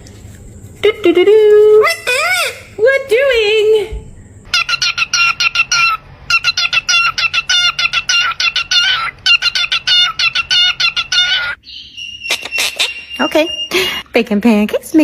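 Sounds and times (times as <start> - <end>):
bird shrill clucking calls: 4.5 - 14.0.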